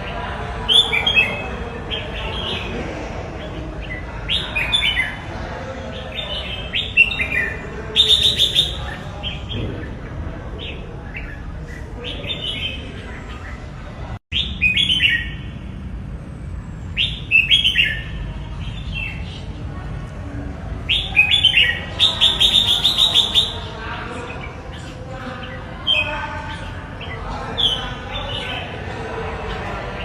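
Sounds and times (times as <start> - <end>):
low background noise: 0.0 - 30.0
bird singing bright phrases: 3.4 - 5.3, 5.9 - 15.6, 16.8 - 19.6, 20.8 - 30.0.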